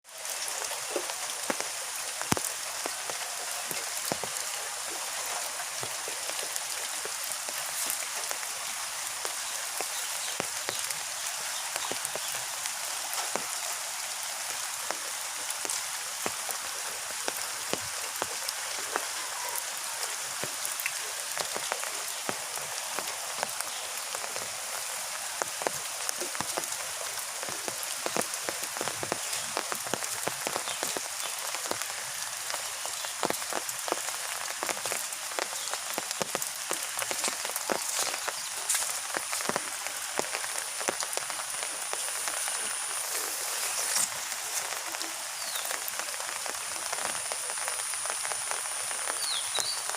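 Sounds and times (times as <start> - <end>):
heavy rain falling: 0.0 - 49.9
rain drops tapping: 0.0 - 49.9.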